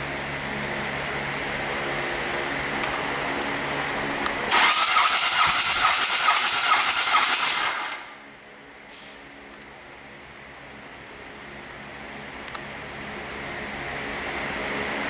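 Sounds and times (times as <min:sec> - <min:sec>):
steady machine hum: 0:00.0 - 0:15.0
loud hiss: 0:08.9 - 0:09.2.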